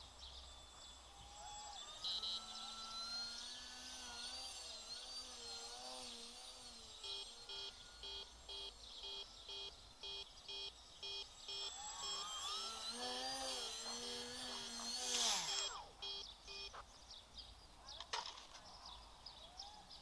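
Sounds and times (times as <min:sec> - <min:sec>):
rising and falling whines: 0:00.0 - 0:16.9
electronic beeper alarm: 0:01.9 - 0:03.4, 0:07.0 - 0:16.8.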